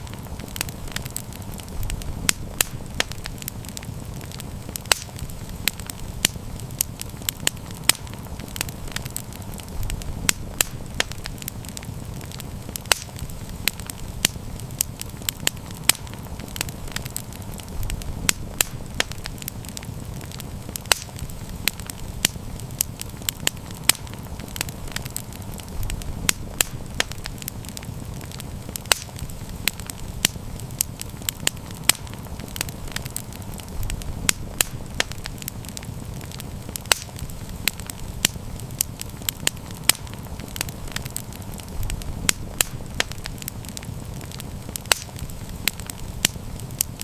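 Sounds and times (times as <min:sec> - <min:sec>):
campfire crackling: 0:00.0 - 0:47.0
low rumble: 0:08.9 - 0:11.4, 0:33.3 - 0:35.4.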